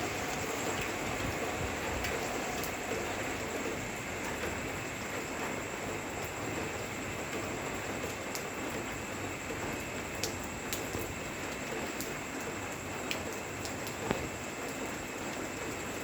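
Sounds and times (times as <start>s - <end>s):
steady rain hiss: 0.0s - 16.0s
sharp drip ticks: 8.1s - 8.8s, 10.2s - 15.5s.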